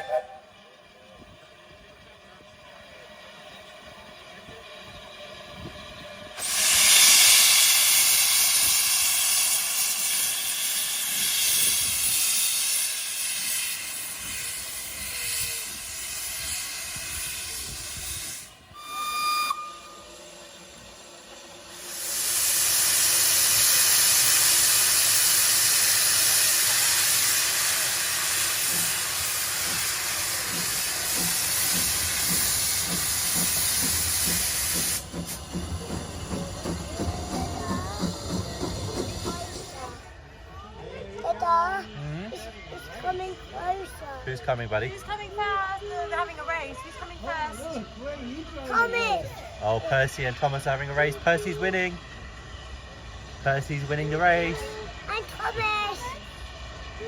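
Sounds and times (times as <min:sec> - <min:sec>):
steam hissing: 0:03.2 - 0:40.1, 0:41.4 - 0:57.0
steam whistle toot: 0:06.4 - 0:20.6.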